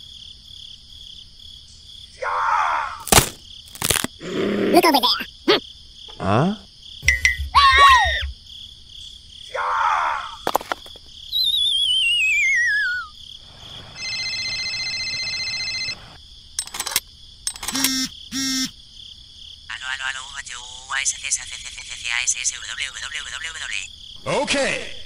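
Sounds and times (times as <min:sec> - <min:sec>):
cartoon squeaks: 0:07.0 - 0:08.3, 0:11.4 - 0:13.1
high insect chirring: 0:11.0 - 0:14.6, 0:16.4 - 0:24.2
wobbling falling whistle: 0:11.3 - 0:13.1
sharp clicks: 0:16.6 - 0:18.1
steady buzzing tone: 0:17.7 - 0:18.8.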